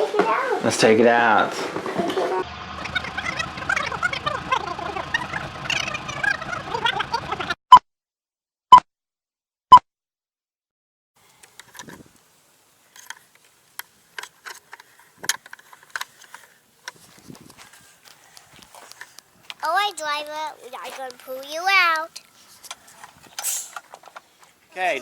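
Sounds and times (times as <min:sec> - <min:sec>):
faint clicks and taps: 0:13.0 - 0:23.2.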